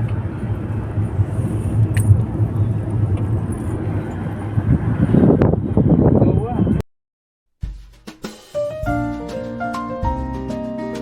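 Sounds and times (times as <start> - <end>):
car engine and road drone: 0.0 - 6.8.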